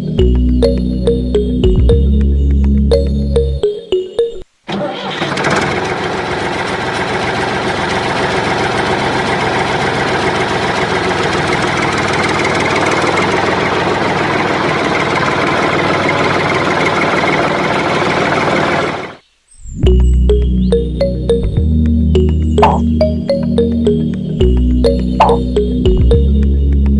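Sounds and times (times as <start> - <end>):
tractor engine idling: 4.7 - 19.1, 22.2 - 26.6.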